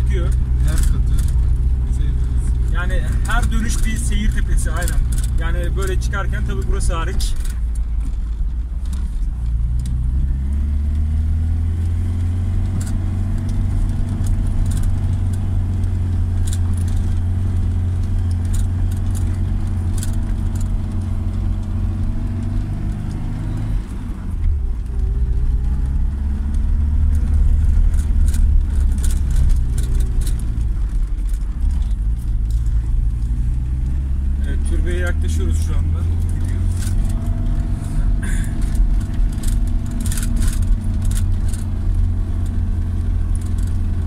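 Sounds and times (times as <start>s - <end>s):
car engine under load: 0.0s - 44.0s
small rattling ticks: 12.8s - 23.3s, 25.8s - 33.6s, 38.3s - 44.0s.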